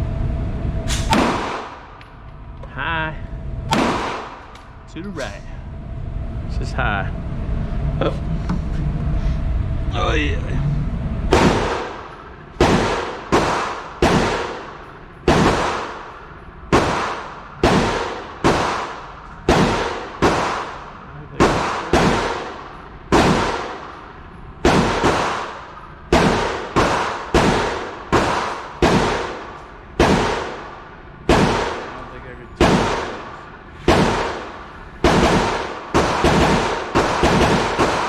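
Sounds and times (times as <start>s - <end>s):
pistol shots with echo: 0.9s - 2.0s, 3.7s - 4.6s, 11.3s - 38.0s.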